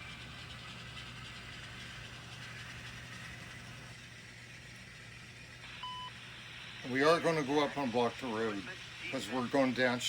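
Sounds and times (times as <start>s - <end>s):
model train running on track: 0.0s - 5.6s, 6.3s - 10.0s
diesel engine sound from speaker: 0.0s - 10.0s.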